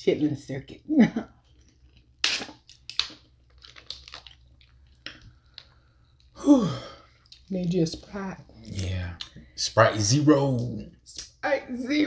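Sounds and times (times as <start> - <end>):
wet chewing with crunches: 1.4 - 6.4.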